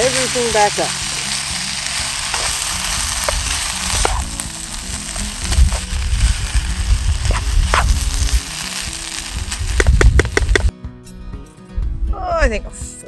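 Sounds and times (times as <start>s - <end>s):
food sizzling in a pan: 0.0s - 10.7s
sharp clicks: 9.8s - 10.7s.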